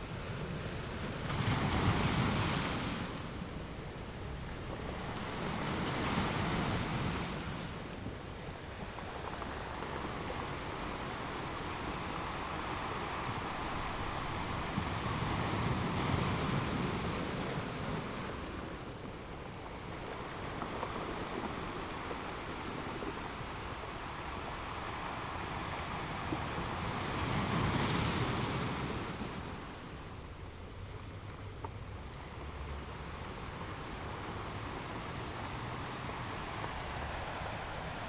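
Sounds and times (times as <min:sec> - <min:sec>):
water washing in waves: 0:00.2 - 0:38.0.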